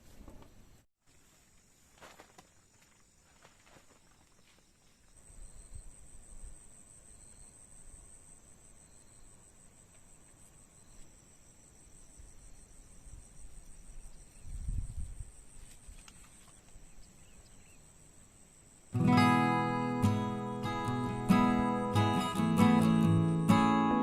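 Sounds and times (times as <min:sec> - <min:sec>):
strummed acoustic guitar music: 0:19.0 - 0:24.0.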